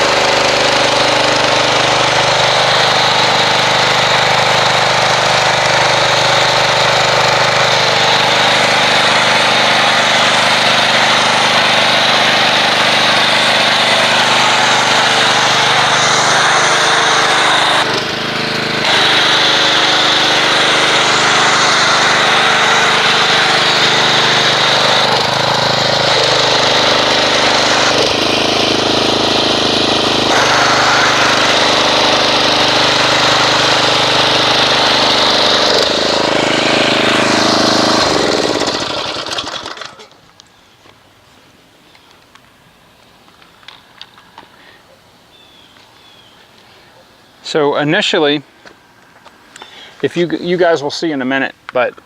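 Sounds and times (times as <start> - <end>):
pressure washer motor running: 0.0 - 40.4.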